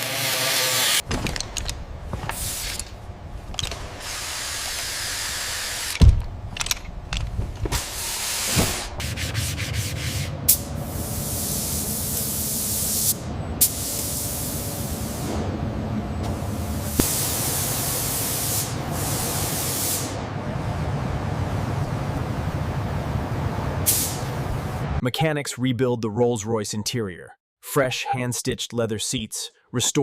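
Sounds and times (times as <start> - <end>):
rough hissing and scraping: 2.1 - 3.0, 3.6 - 6.0.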